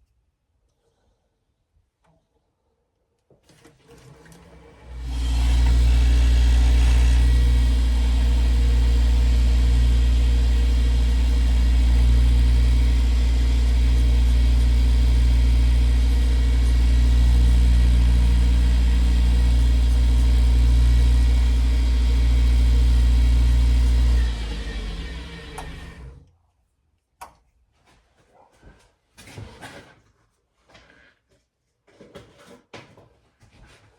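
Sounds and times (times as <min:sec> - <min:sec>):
lathe motor humming: 0:04.0 - 0:26.3.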